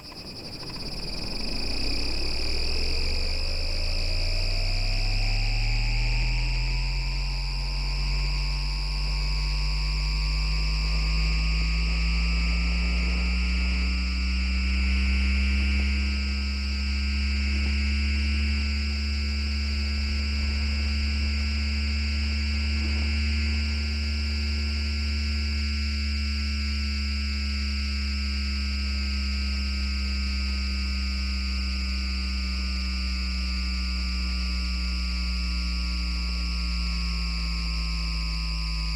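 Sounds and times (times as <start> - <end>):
electric low hum: 0.0 - 38.9
tram inverter electrical whine: 0.0 - 38.9
high whining tones: 8.8 - 26.8.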